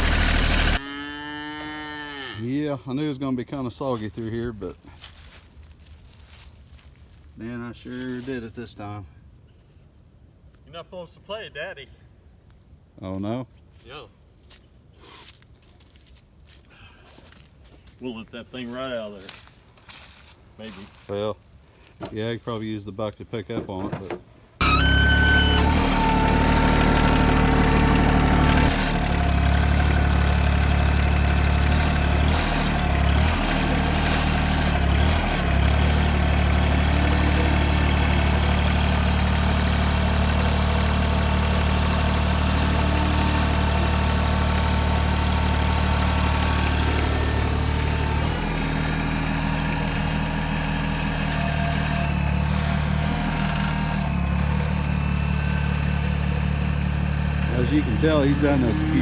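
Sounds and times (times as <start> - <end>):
tractor diesel engine running: 0.0 - 0.8, 23.6 - 59.0.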